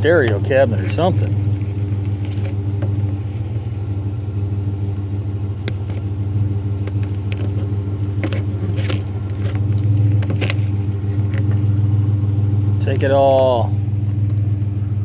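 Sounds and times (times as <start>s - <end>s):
sharp clicks and knocks: 0.0s - 3.6s, 4.9s - 6.1s, 6.8s - 11.8s, 12.8s - 14.7s
truck engine running: 0.0s - 15.0s.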